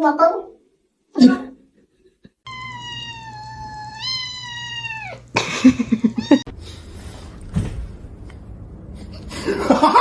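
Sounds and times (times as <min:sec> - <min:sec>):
cat meowing: 0:02.5 - 0:05.3, 0:06.1 - 0:06.5.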